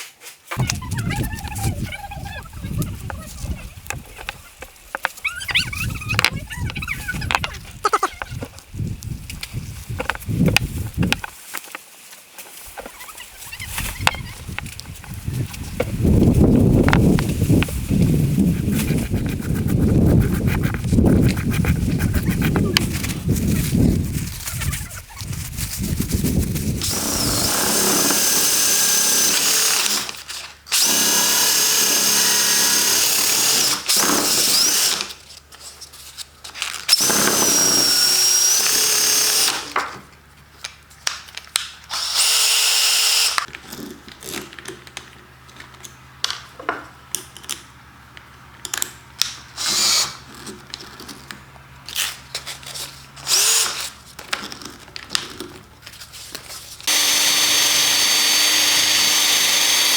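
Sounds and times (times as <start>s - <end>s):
electric drill whining: 26.8s - 35.2s, 36.9s - 39.8s, 41.9s - 43.5s, 53.2s - 53.8s, 56.8s - 59.9s.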